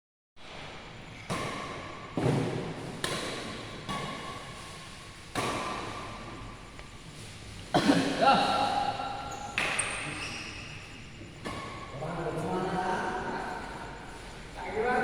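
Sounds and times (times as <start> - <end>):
rackets hitting shuttlecock: 1.2 - 4.6, 5.2 - 6.2, 9.5 - 10.2.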